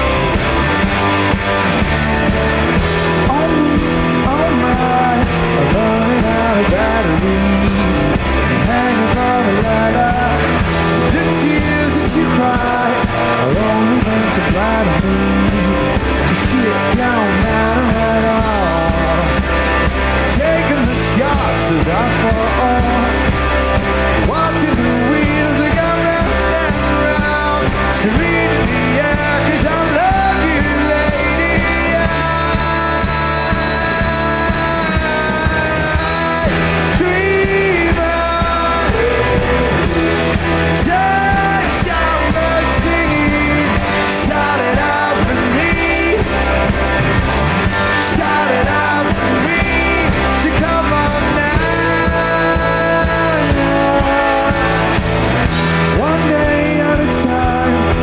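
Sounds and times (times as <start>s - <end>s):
rock band playing live: 0.0s - 58.0s
person singing: 2.6s - 58.0s.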